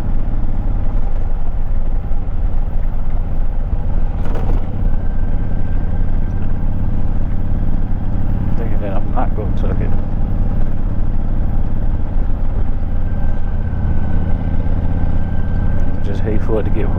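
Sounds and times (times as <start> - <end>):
motorcycle engine idling: 0.0 - 16.9
brief rustle: 4.2 - 5.0.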